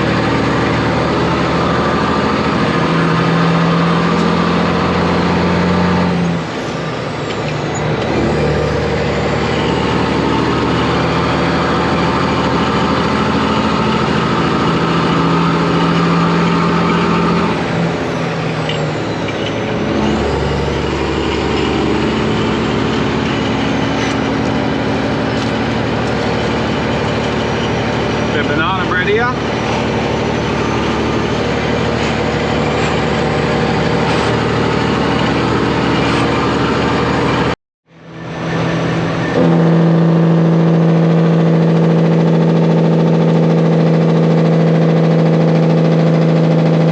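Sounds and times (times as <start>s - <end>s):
truck diesel engine running: 0.0s - 46.9s.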